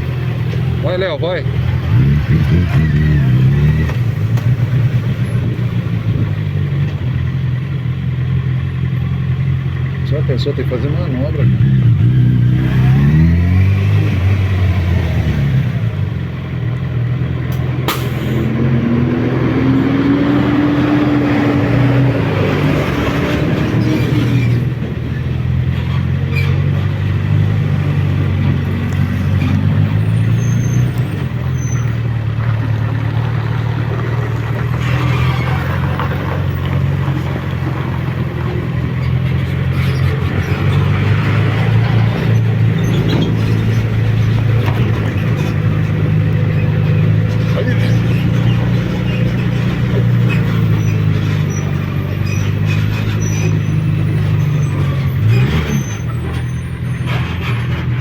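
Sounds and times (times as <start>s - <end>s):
motorcycle engine running: 0.0s - 12.2s.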